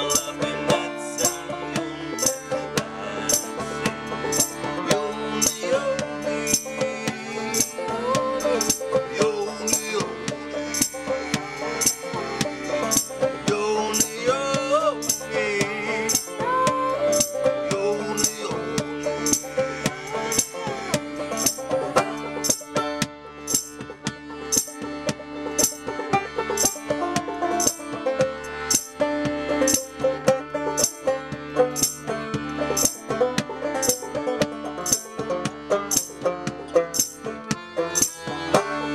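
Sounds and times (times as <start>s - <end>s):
folk-punk banjo music: 0.0s - 38.9s
shaker beat: 2.2s - 2.5s, 6.5s - 6.8s, 10.7s - 13.2s, 15.0s - 15.4s, 16.1s - 18.6s, 20.3s - 20.7s, 21.3s - 22.8s, 25.6s - 26.0s, 26.6s - 28.0s, 28.7s - 29.0s, 29.7s - 30.0s, 30.7s - 31.1s, 31.7s - 32.0s, 32.8s - 33.2s, 33.8s - 34.1s, 34.8s - 35.2s, 35.9s - 36.3s, 36.9s - 37.2s.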